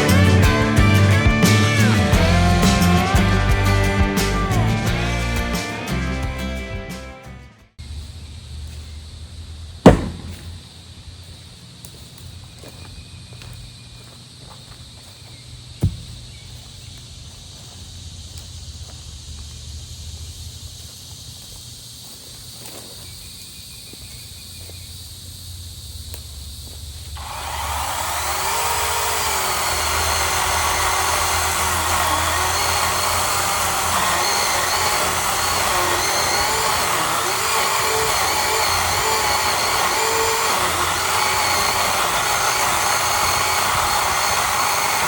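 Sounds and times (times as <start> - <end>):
sharp knock: 9.9 - 10.6
motor-driven machine whining: 27.0 - 45.0.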